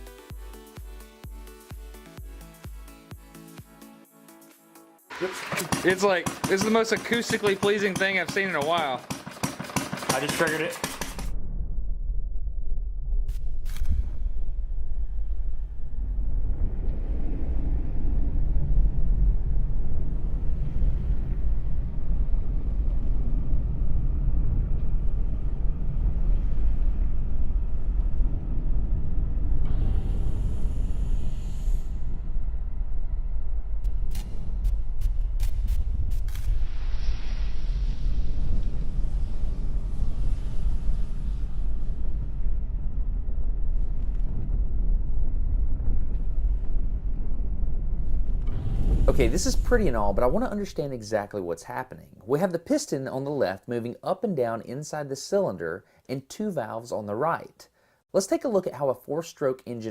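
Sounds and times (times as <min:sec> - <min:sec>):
engine running low rumble: 0:11.1 - 0:50.9
hiss: 0:29.7 - 0:32.4, 0:35.1 - 0:42.1.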